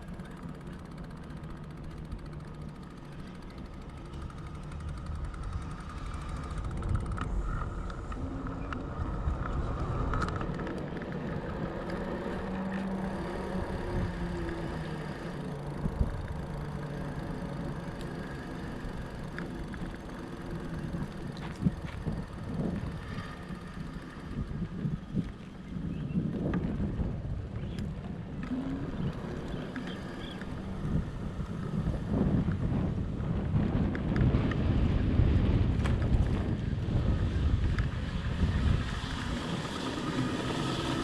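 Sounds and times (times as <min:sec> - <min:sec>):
faint wavering hum: 0:00.0 - 0:33.7
wide bike tyres rolling: 0:00.0 - 0:41.0.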